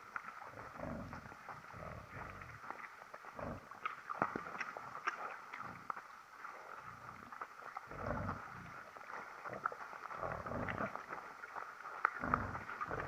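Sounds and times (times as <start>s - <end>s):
faint steady crackling: 0.0s - 13.0s
animal making low noises: 0.4s - 3.7s, 6.6s - 11.2s, 12.0s - 13.0s.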